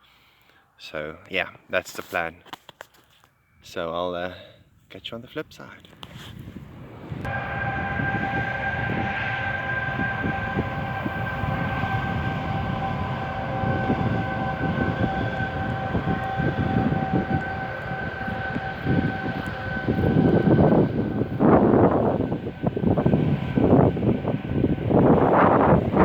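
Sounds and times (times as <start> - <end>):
wind buffeting microphone: 5.4 - 26.0
droning whine: 6.5 - 26.0.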